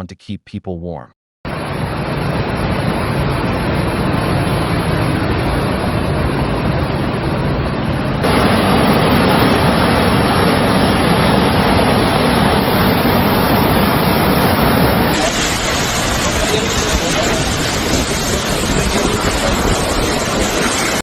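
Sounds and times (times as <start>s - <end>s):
floodwater rushing: 8.2s - 21.0s.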